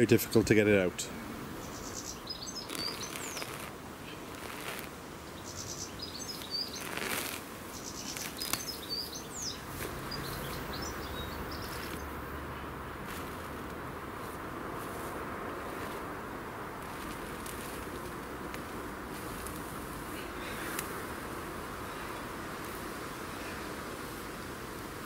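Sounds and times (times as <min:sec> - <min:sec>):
small birds chirping: 0:01.5 - 0:25.0.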